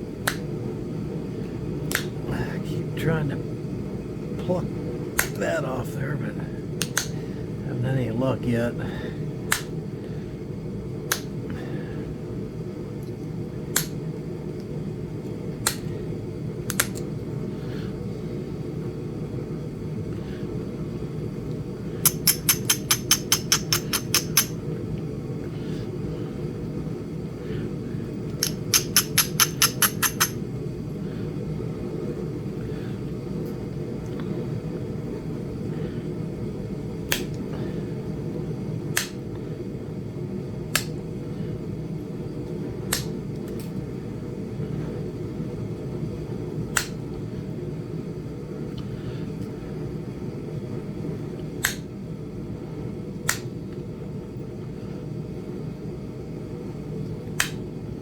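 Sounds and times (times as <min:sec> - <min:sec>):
hammer striking stone: 0:22.1 - 0:24.5, 0:28.4 - 0:30.4.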